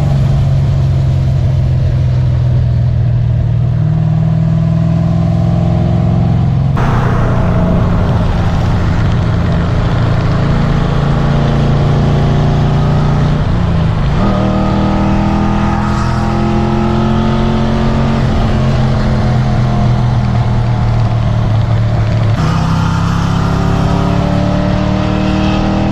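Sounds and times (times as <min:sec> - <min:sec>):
wind and road noise: 0:00.0 - 0:25.9
car engine revving under load: 0:06.8 - 0:25.9.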